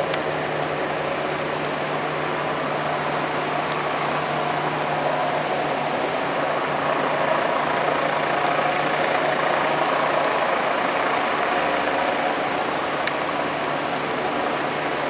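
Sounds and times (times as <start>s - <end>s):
helicopter engine and rotor: 0.0s - 15.0s.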